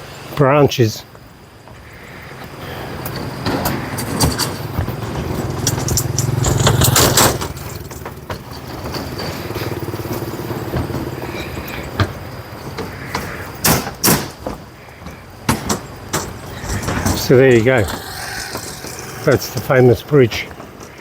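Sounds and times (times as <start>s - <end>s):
clacks and knocks of wooden boards: 2.4s - 19.0s
motorbike engine passing: 3.2s - 13.6s, 16.2s - 21.0s.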